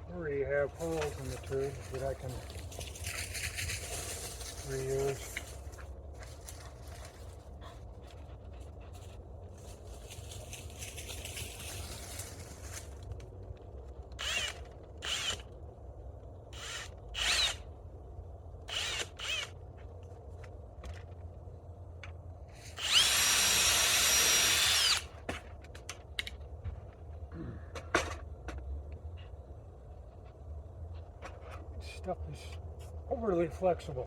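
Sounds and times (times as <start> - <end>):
power drill whining: 14.2 - 15.5, 16.6 - 17.6, 18.7 - 19.6, 22.8 - 25.2.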